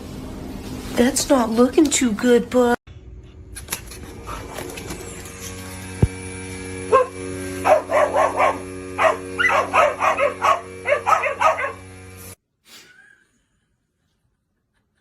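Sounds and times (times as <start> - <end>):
steady background hum: 0.0 - 12.4
dog yapping: 6.9 - 11.8.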